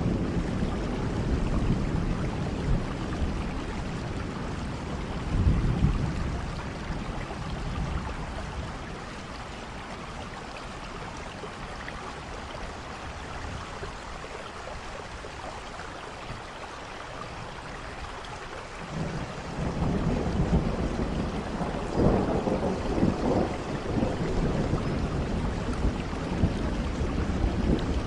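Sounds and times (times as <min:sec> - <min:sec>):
thunder rumble: 0:00.0 - 0:10.0, 0:18.8 - 0:28.0
steady rain hiss: 0:00.0 - 0:28.0.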